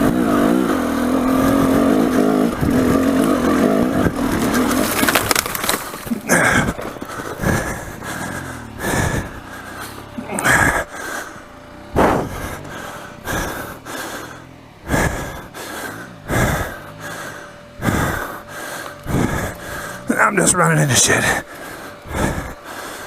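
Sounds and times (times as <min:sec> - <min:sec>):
person breathing heavily: 0:06.0 - 0:20.2, 0:21.1 - 0:23.0.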